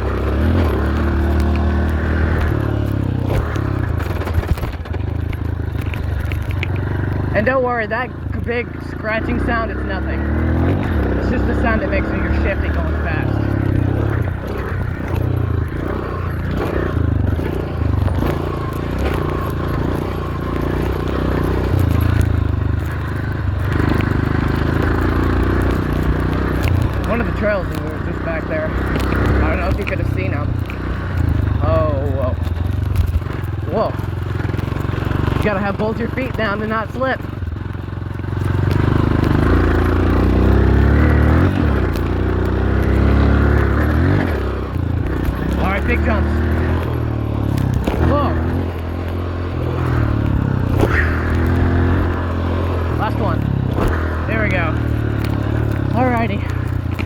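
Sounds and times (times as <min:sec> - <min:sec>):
scratching rattling noise: 0:00.0 - 0:07.3
dirt bike engine running hard: 0:00.0 - 0:57.0.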